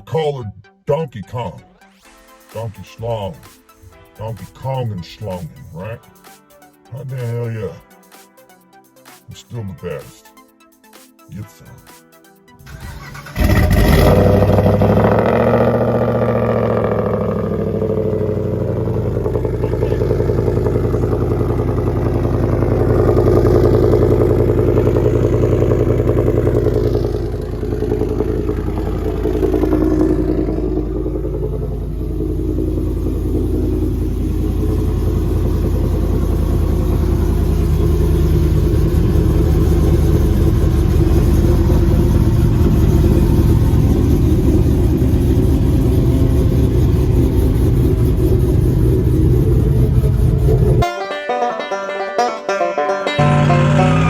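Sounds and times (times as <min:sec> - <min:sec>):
engine through loud exhaust: 0:12.6 - 0:50.8, 0:53.2 - 0:54.0.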